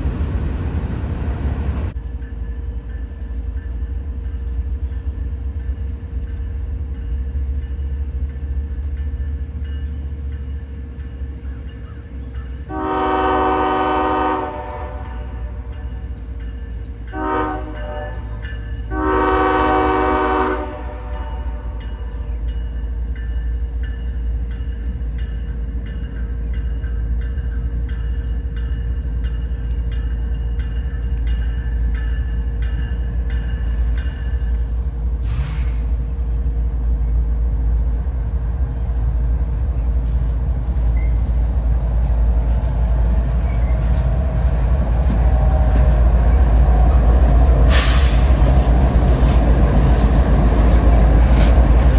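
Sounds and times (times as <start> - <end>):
train rumble: 0.0 - 51.9
train horn blast: 12.7 - 15.8, 17.1 - 22.3.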